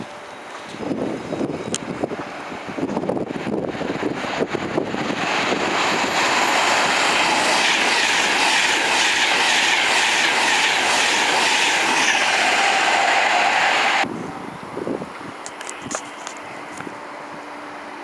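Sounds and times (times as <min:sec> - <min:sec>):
train wheels clattering on rails: 0:02.9 - 0:14.0.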